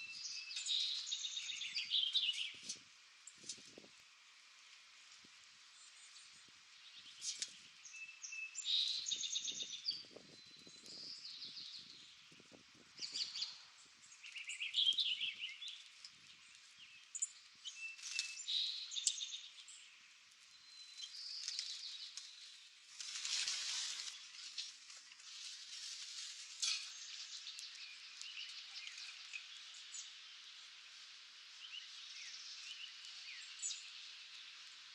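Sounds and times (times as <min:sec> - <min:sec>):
birds chirping and trilling: 0:00.0 - 0:03.6, 0:13.0 - 0:22.6, 0:26.6 - 0:30.7.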